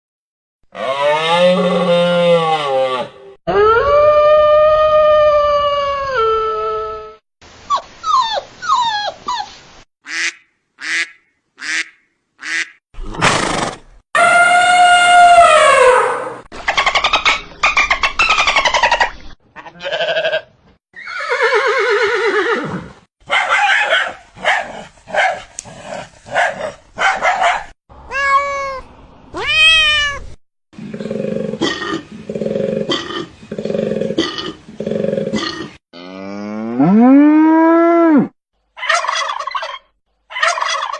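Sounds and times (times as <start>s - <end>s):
girl imitating animal calls: 28.1s - 30.3s.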